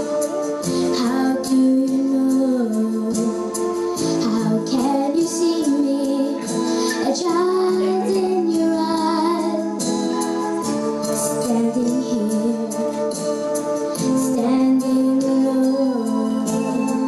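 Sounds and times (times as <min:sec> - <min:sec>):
instrumental accompaniment: 0:00.0 - 0:17.0
woman singing: 0:00.7 - 0:13.3, 0:13.9 - 0:17.0
children singing: 0:01.3 - 0:13.1.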